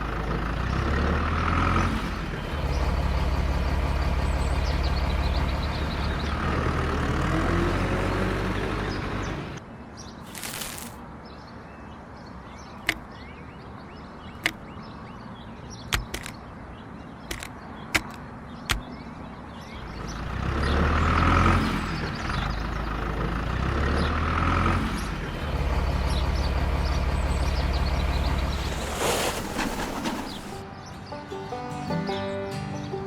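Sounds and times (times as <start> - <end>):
vehicle engine running: 0.0 - 9.6, 19.7 - 30.7
sharp clicks: 15.9 - 16.4, 17.2 - 18.9.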